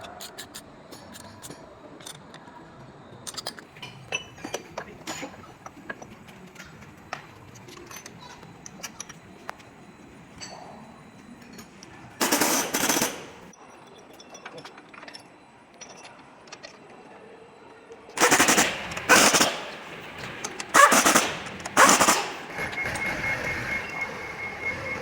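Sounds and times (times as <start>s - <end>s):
pneumatic impact wrench rattling: 12.2s - 13.5s, 18.2s - 23.6s.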